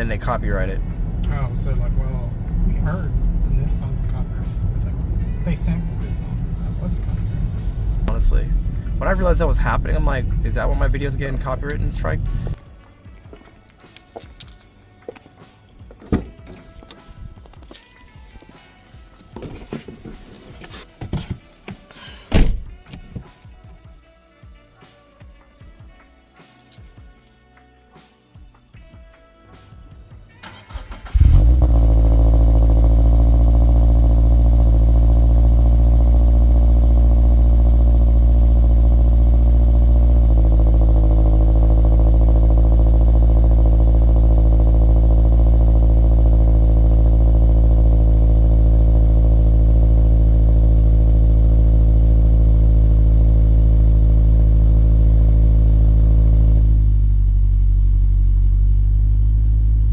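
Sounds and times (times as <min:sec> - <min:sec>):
car engine starting and idling: 0:00.0 - 0:12.6, 0:30.4 - 0:59.9.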